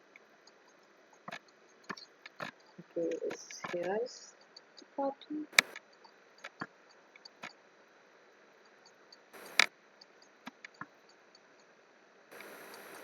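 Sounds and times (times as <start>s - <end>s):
computer mouse and keyboard clicks: 5.6s - 5.8s, 9.4s - 9.7s.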